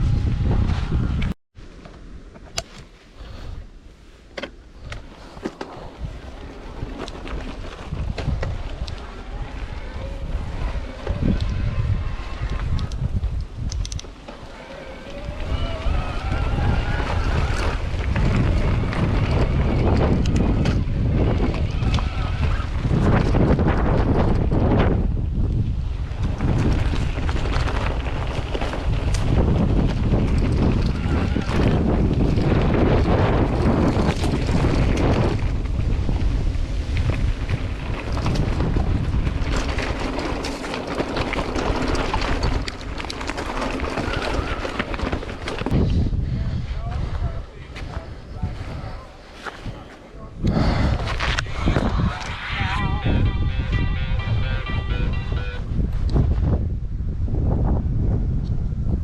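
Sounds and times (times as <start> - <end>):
wind buffeting microphone: 0.0 - 1.4, 4.7 - 59.0.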